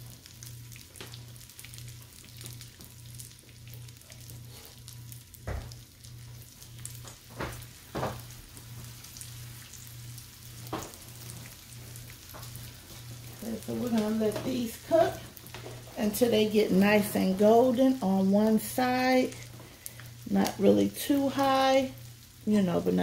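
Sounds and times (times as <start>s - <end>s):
chicken sizzling in oil: 0.0s - 23.0s.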